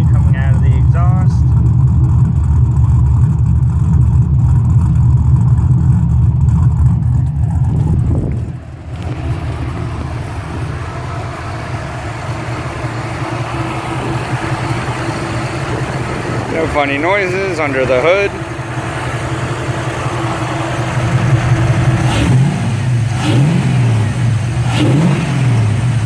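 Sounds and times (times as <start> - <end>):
hissy engine sound: 0.0 - 1.6, 8.1 - 22.0
engine idling with deep exhaust rumble: 0.0 - 26.0.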